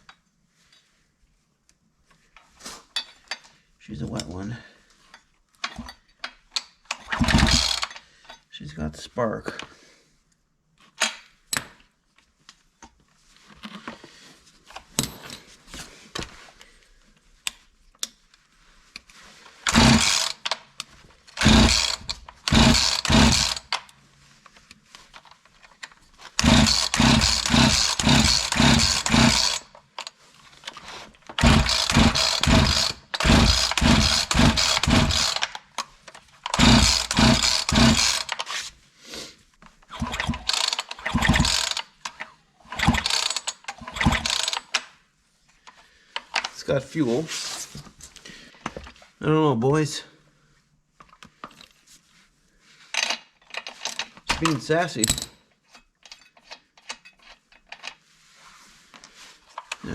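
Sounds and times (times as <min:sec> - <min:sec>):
chainsaw recoil starter pulls: 0:06.9 - 0:08.1, 0:19.6 - 0:23.9, 0:26.3 - 0:30.2, 0:31.3 - 0:35.8, 0:36.4 - 0:38.6, 0:39.9 - 0:44.9.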